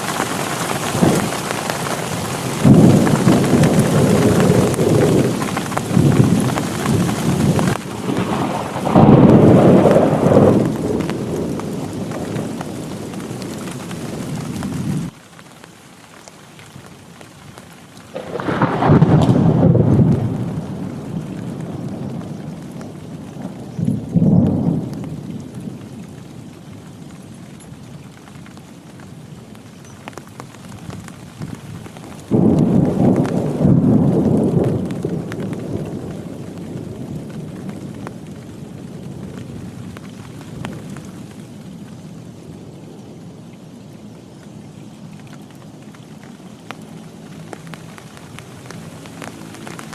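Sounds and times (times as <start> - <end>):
thunder rumbling: 0.0 - 15.2, 18.1 - 27.1, 30.1 - 42.7
heavy rain falling: 0.0 - 49.9.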